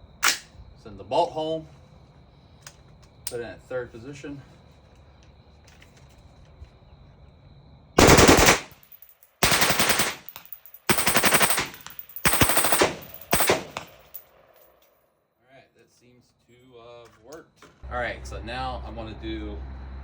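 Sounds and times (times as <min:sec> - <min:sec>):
rifle rapid shots: 0:08.0 - 0:14.2.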